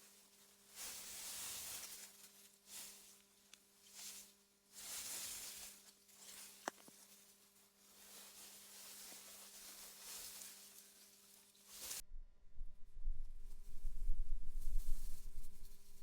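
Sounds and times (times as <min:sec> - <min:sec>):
wind through grass: 0:11.8 - 0:16.0
low hum: 0:12.0 - 0:16.0.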